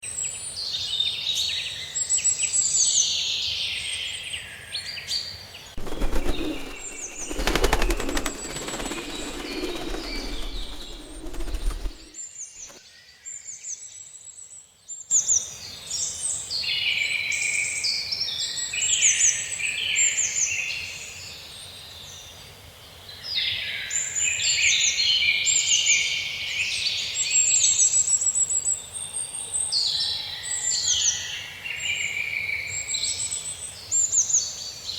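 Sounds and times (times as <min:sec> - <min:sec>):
songbirds chirping and trilling: 0:04.4 - 0:13.2
rapid rattling noise: 0:05.8 - 0:12.8.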